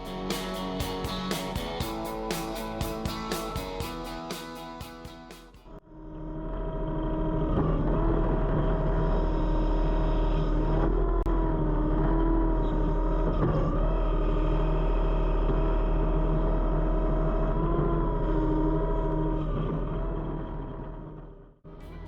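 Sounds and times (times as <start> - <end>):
engine running: 0.0 - 5.8.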